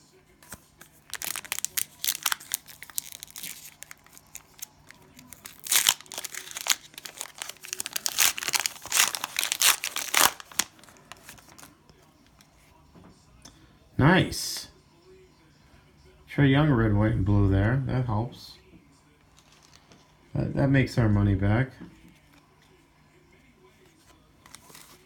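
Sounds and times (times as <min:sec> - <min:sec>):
cellophane wrapper crinkling and tearing: 0:01.1 - 0:11.7.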